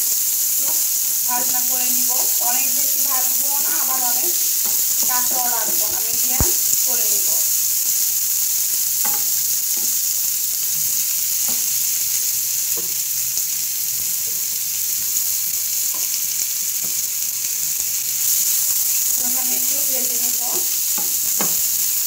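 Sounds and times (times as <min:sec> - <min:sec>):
onions sizzling in hot oil: 0:00.0 - 0:22.0
wooden spatula knocking pan: 0:20.5 - 0:21.6.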